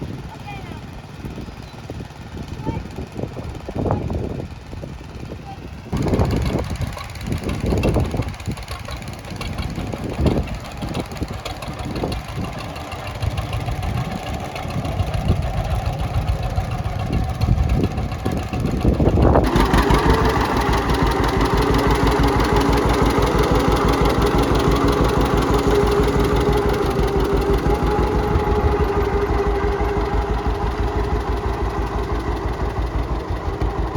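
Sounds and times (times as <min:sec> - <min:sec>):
tractor engine knocking and idling: 0:00.0 - 0:33.9.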